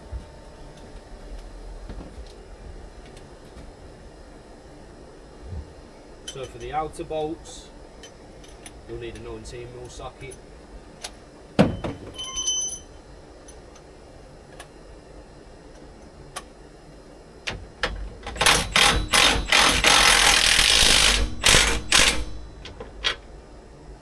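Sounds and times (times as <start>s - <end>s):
metallic clink with ring: 12.2s - 13.0s
socket wrench ratchet clicking: 18.4s - 22.3s.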